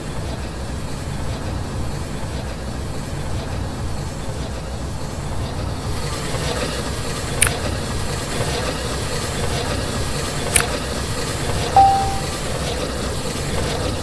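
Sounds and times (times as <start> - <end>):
short high beep: 11.8 - 12.3.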